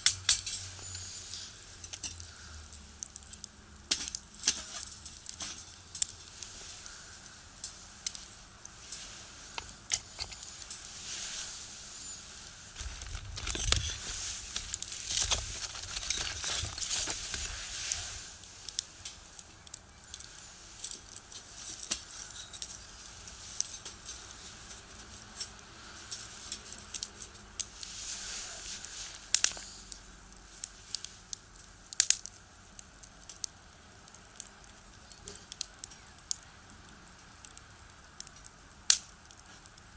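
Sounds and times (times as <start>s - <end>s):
fire rushing: 0.0s - 31.3s
wood fire crackling: 0.0s - 39.9s.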